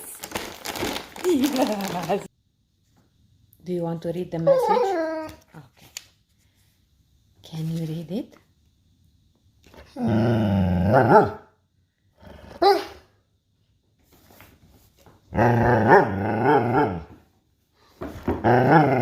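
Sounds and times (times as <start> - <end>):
dog grumbling growls: 9.9 - 11.4, 12.2 - 12.8, 15.3 - 17.2, 18.3 - 19.0.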